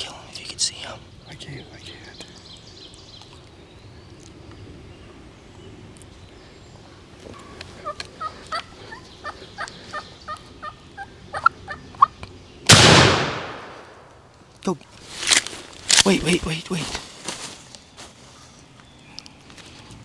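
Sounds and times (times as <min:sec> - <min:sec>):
turkeys putting alarm calls: 0:07.2 - 0:12.3
shotgun firing: 0:12.7 - 0:14.1.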